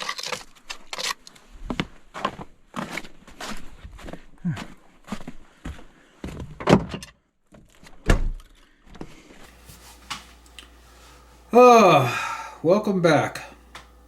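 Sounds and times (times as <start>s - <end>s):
low steady hum: 9.5s - 14.0s.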